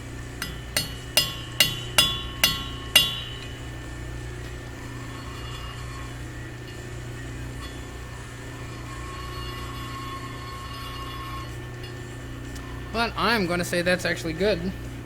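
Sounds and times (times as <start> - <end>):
hammer tapping metal tube: 0.4 - 3.6.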